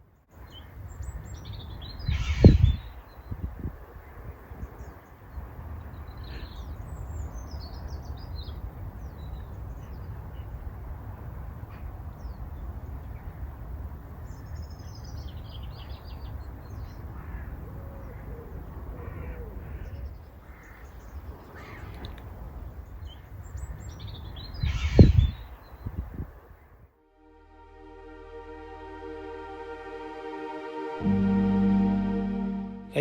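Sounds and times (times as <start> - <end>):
songbirds twittering: 14.2 - 26.0.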